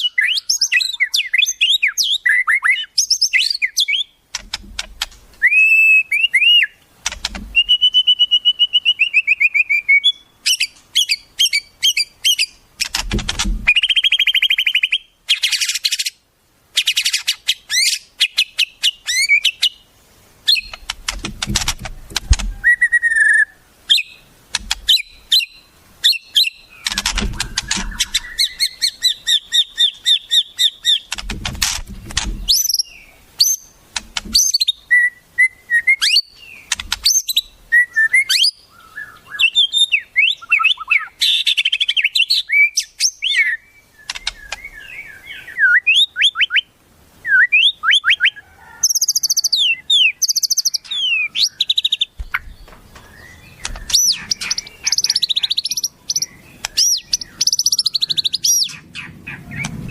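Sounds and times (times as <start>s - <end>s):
bird singing varied song: 0.0s - 59.9s
low rumbles: 58.7s - 59.9s.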